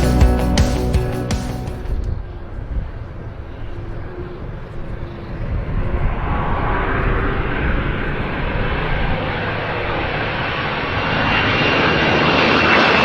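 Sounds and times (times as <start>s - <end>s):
jet engine rushing: 5.8s - 13.0s.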